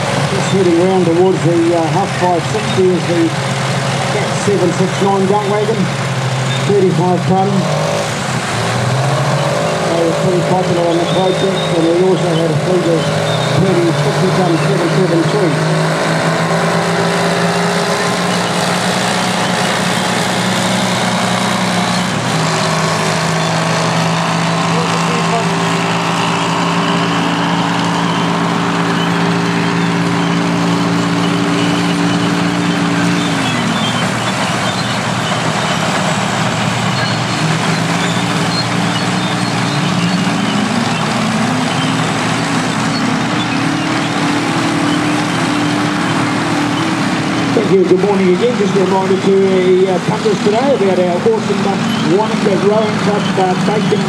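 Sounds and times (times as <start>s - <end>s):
heavy diesel machinery running: 0.0s - 54.0s.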